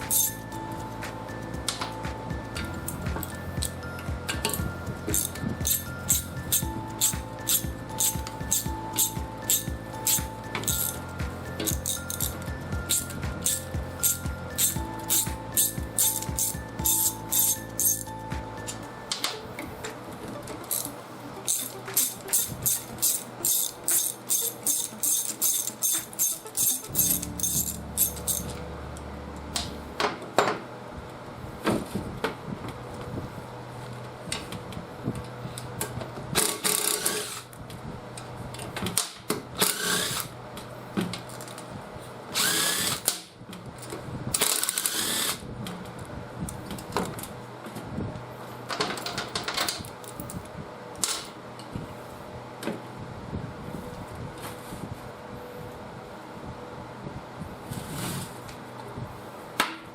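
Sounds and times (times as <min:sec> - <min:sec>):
power drill-driver bursts: 0:05.1 - 0:11.0, 0:11.7 - 0:18.0, 0:20.7 - 0:28.5, 0:39.6 - 0:40.3, 0:42.4 - 0:43.2, 0:44.4 - 0:45.4.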